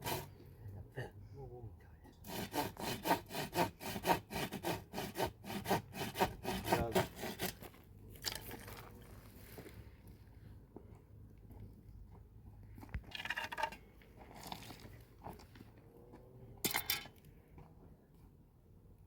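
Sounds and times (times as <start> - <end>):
hand saw cutting wood: 0.0 - 0.4, 2.2 - 7.8.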